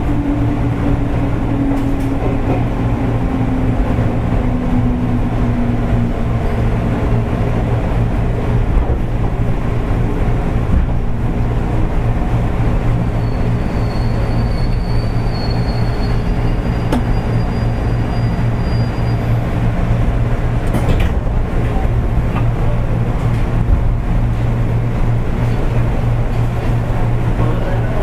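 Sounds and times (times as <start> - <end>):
train motors and wheels rumbling: 0.0 - 28.0
high wheel squeal: 13.0 - 19.5.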